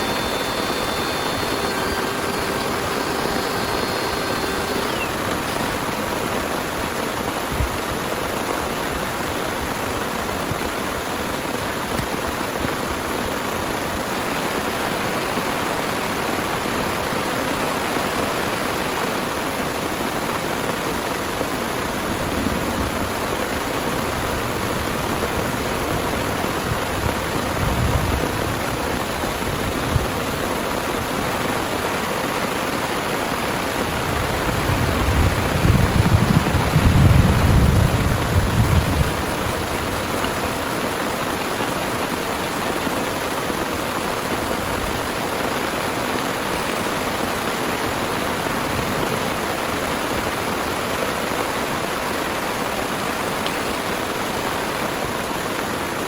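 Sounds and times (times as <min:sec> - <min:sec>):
heavy rain pouring: 0:00.0 - 0:56.0
thunder rumbling: 0:33.8 - 0:40.2.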